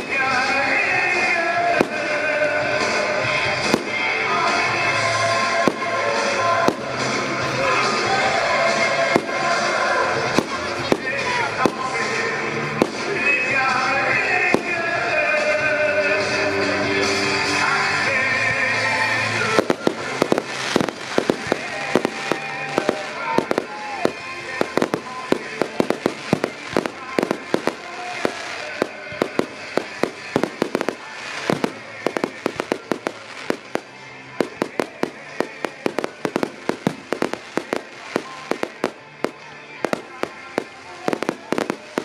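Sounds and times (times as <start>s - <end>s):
music: 0.0s - 42.0s
firework shells bursting: 19.6s - 42.0s.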